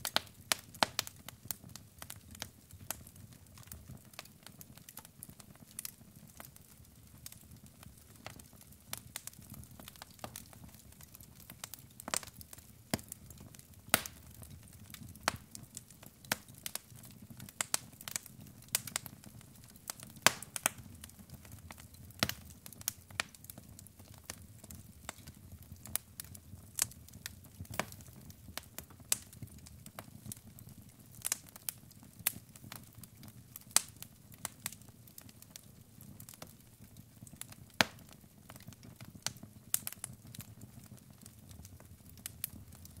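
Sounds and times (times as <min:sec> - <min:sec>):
fire pops and snaps: 0:00.0 - 0:43.0.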